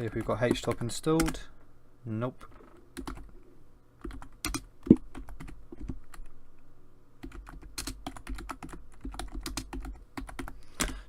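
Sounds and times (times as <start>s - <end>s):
faint steady hum: 0.0s - 11.0s
typing on computer keyboard: 3.0s - 3.3s, 4.0s - 6.0s, 7.2s - 11.0s.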